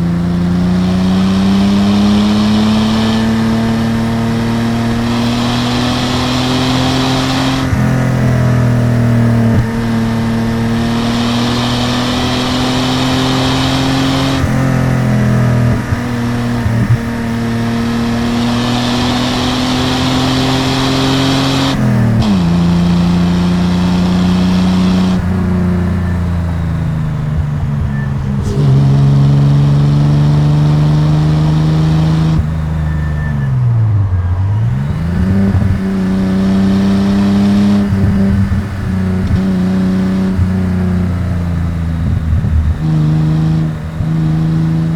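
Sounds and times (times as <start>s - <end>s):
car engine under load: 0.0s - 44.9s.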